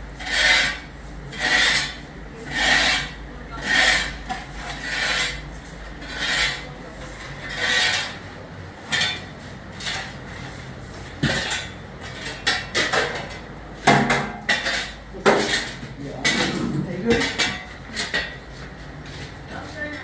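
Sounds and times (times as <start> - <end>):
broad scraping strokes: 0.1 - 11.0
pots and dishes clattering: 1.4 - 18.5.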